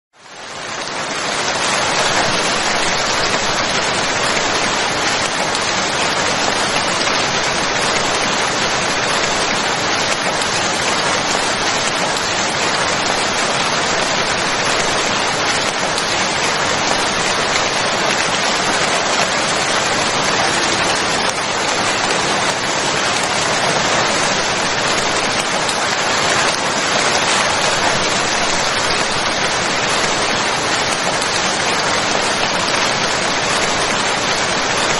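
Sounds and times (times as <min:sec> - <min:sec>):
rain falling: 0:00.2 - 0:34.9.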